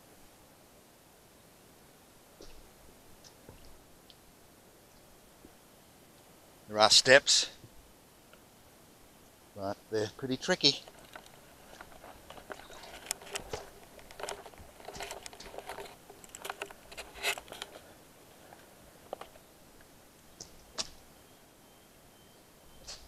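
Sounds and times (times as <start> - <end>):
footsteps crunching on rock steps: 10.7 - 17.9.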